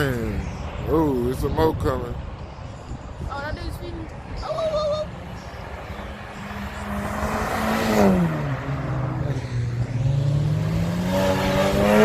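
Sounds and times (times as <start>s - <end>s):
car engine accelerating hard: 6.0s - 12.0s.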